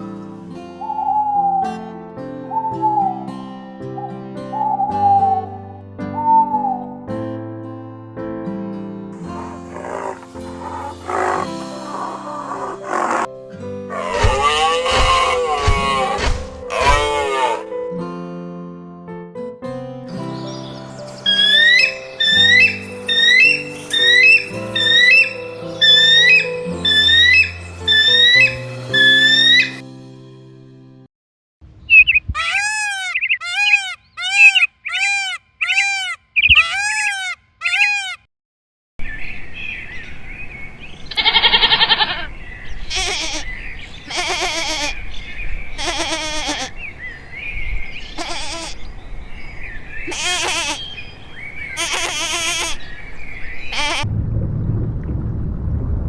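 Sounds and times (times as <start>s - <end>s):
animal calls: 9.3s - 13.3s, 13.9s - 17.7s, 21.2s - 29.8s, 31.9s - 38.3s, 41.1s - 42.3s
low rumble: 54.0s - 56.0s.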